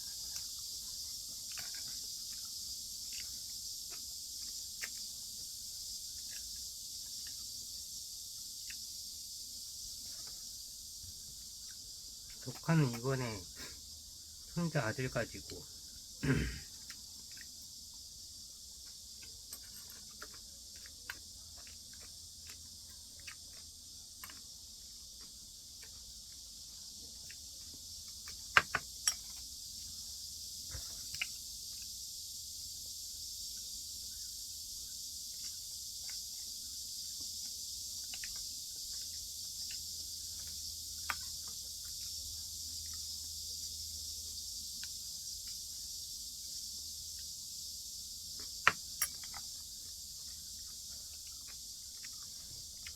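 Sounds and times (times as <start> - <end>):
steady high hiss: 0.0 - 20.8, 23.2 - 52.9.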